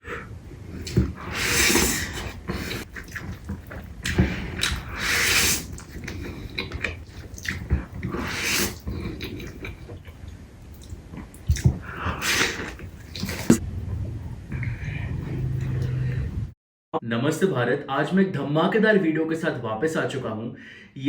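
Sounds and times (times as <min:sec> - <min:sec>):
person chewing and smacking: 0:00.7 - 0:13.6
hissing slurping bursts: 0:00.9 - 0:02.9, 0:04.7 - 0:05.8, 0:08.1 - 0:08.8.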